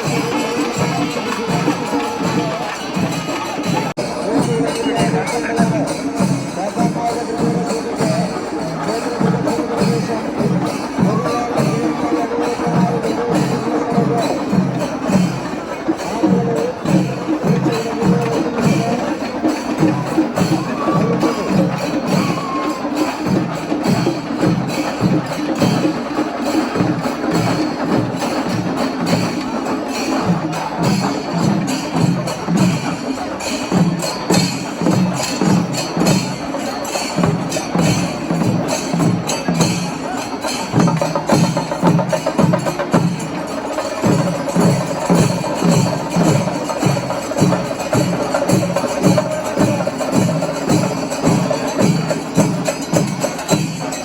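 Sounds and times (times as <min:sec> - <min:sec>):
cymbals shimmering: 0:00.0 - 0:54.0
rapid drum strokes: 0:00.0 - 0:54.0.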